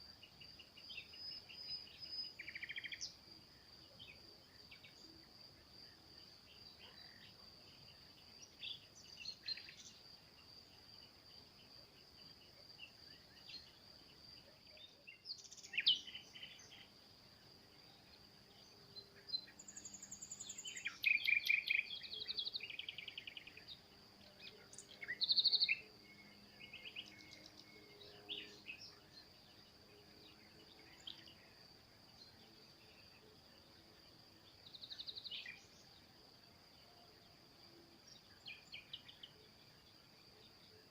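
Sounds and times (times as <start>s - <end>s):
songbirds chirping and trilling: 0.0s - 40.9s
high insect buzz: 15.4s - 29.2s.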